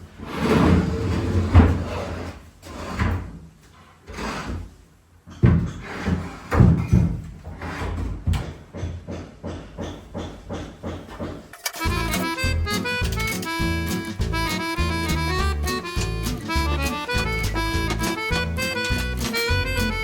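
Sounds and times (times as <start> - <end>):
bed frame knocking and clattering: 5.3 - 6.0, 8.0 - 11.9.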